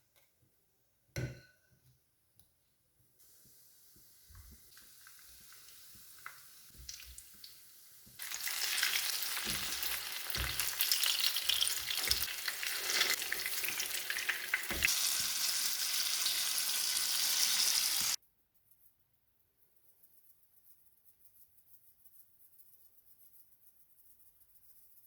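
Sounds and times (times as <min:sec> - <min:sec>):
batter frying in a hot pan: 0:03.2 - 0:18.2.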